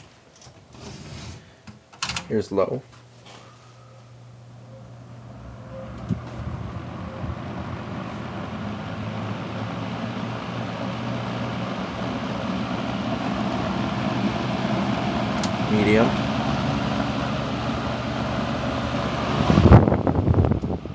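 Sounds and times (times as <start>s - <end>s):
box fan motor hum: 0.0s - 20.9s
air rushing from fan blades: 5.2s - 20.9s.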